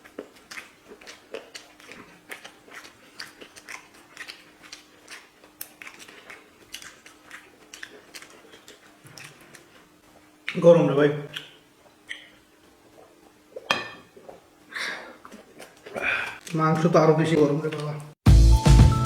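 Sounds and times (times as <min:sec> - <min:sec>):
chewing and lip smacks: 0:00.0 - 0:10.6, 0:11.3 - 0:14.4, 0:15.1 - 0:16.6.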